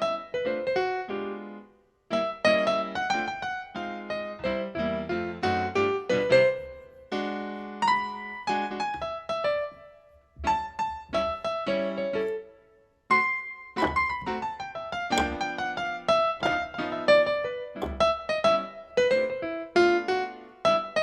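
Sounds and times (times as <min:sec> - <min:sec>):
piano music: 0:13.8 - 0:19.4.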